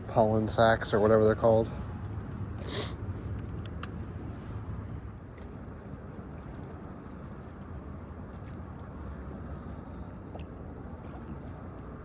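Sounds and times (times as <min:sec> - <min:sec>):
low background rumble: 0:00.0 - 0:12.0
water lapping against a kayak: 0:05.1 - 0:12.0.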